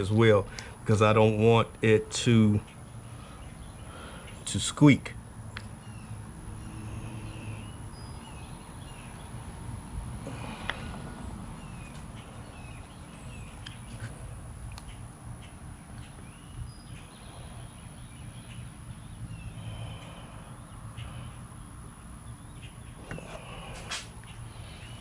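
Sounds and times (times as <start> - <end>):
low outdoor rumble: 0.0 - 25.0
faint bird chirps: 5.5 - 9.4, 10.2 - 25.0.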